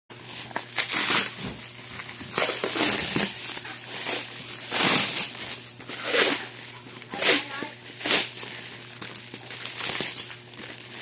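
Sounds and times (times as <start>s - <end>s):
packaging crinkling and rustling: 0.1s - 11.0s.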